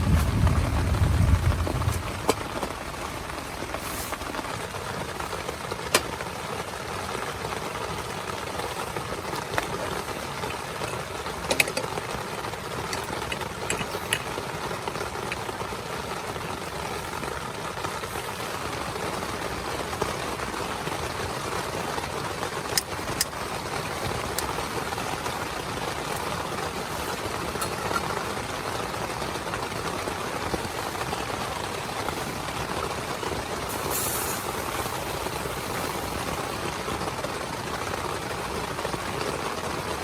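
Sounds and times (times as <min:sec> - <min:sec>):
heavy rain on a tent: 0:00.0 - 0:40.0.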